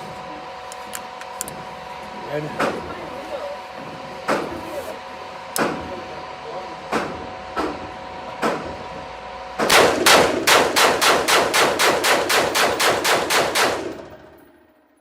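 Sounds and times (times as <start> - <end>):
gunshot echo: 9.6 - 14.3
pistol shots in rapid fire: 9.6 - 14.4.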